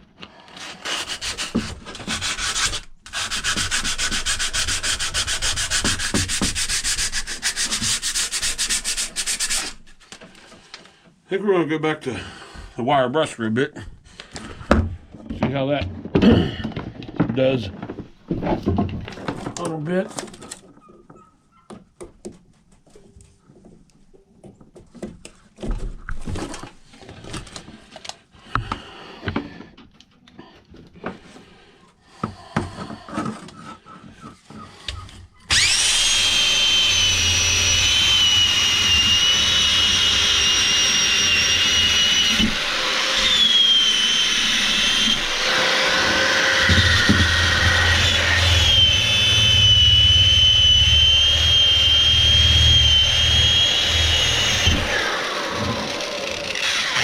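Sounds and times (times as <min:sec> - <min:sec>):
power tool whining: 0:35.5 - 0:57.0.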